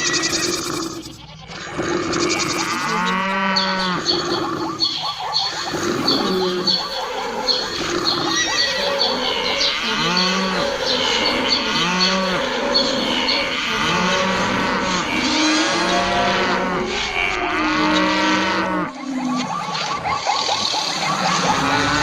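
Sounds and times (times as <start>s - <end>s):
cattle mooing: 0.0s - 4.7s, 7.9s - 19.0s
other animal sounds: 0.0s - 22.0s.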